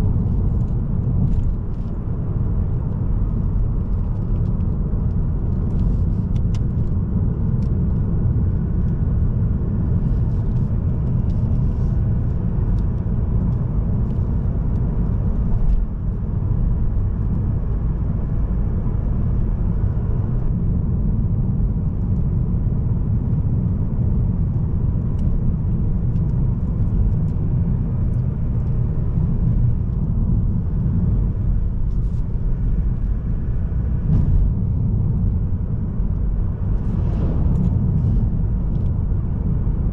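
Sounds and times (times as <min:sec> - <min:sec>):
tyre and road noise: 0:00.0 - 0:39.9
car engine cruising: 0:26.2 - 0:39.9.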